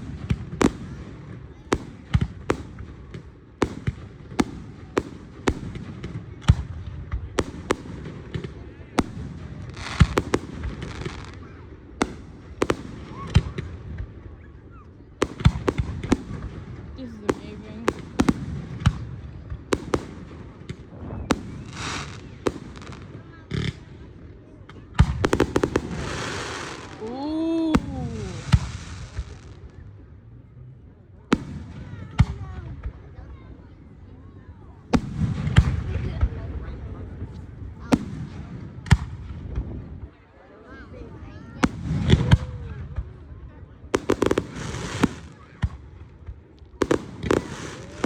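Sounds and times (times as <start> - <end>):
fireworks bangs: 0.0 - 14.2, 15.2 - 29.8, 41.6 - 48.0
hissing firework burst: 19.7 - 23.2, 25.1 - 29.6, 43.9 - 45.4, 46.8 - 48.0.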